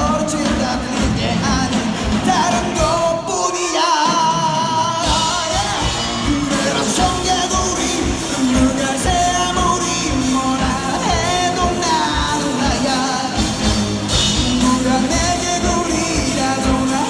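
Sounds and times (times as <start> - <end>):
pop-rock song with singer: 0.0 - 17.0.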